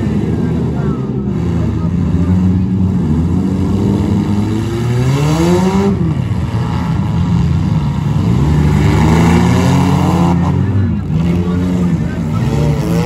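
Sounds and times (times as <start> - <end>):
car engines revving hard: 0.0 - 13.0.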